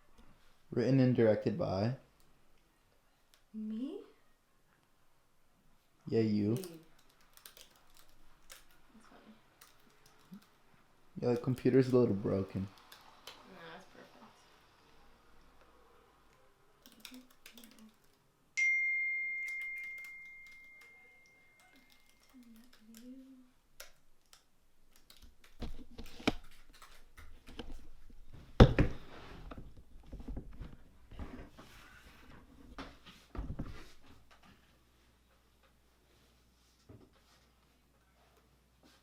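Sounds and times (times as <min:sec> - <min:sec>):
bell-like ding: 0:18.6 - 0:21.6.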